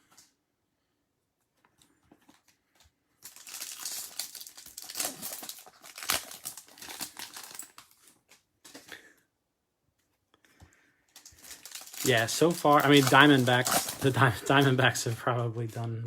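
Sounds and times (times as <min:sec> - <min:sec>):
plastic wrapper crinkling and tearing: 0:02.3 - 0:09.0, 0:11.1 - 0:15.8.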